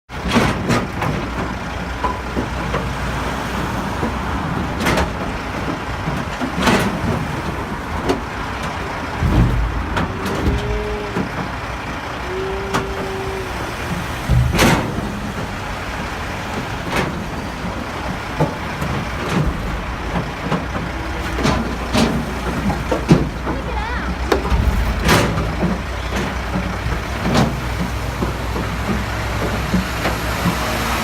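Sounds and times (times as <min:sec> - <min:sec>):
traffic noise: 0:00.1 - 0:31.0
truck engine running: 0:00.1 - 0:31.0
sharp bangs: 0:06.6 - 0:23.5, 0:24.2 - 0:27.9
heavy low thump: 0:07.5 - 0:12.1, 0:12.8 - 0:23.5, 0:24.3 - 0:28.7
high squeals: 0:08.8 - 0:16.4.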